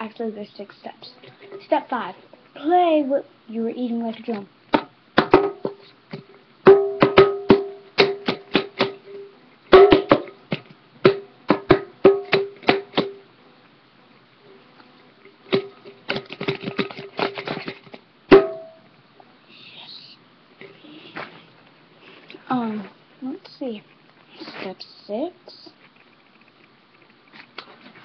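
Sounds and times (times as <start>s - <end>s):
taps drumming on a dish: 4.7s - 9.0s, 9.7s - 13.2s, 18.3s - 18.8s.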